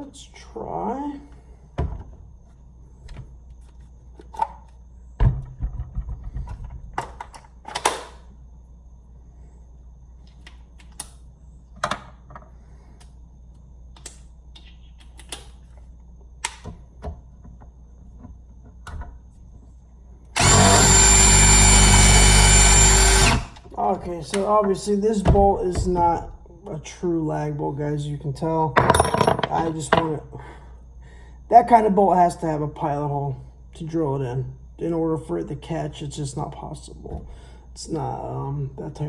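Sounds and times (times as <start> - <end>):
cordless impact driver running: 20.4 - 23.6.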